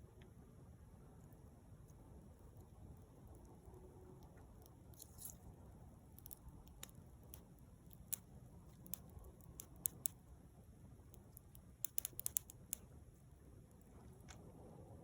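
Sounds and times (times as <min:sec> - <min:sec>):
bonfire crackling: 0:03.4 - 0:10.2, 0:11.0 - 0:13.0.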